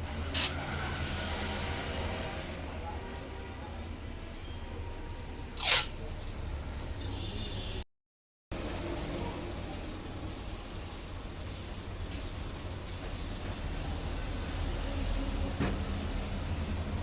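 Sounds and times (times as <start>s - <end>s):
spray paint hissing: 9.0s - 17.0s.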